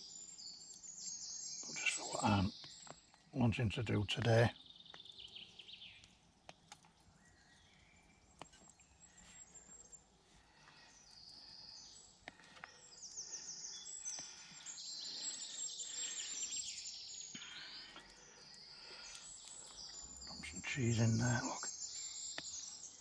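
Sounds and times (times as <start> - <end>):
sharp clicks: 6.0 - 7.0
songbird singing high trills: 10.9 - 23.0.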